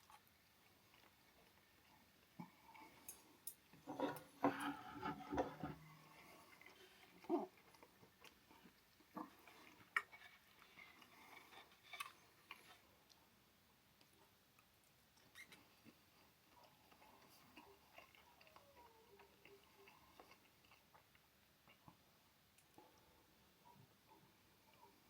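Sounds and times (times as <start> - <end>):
wet chewing with smacks: 0.0 - 3.0, 6.2 - 13.2, 14.0 - 23.0.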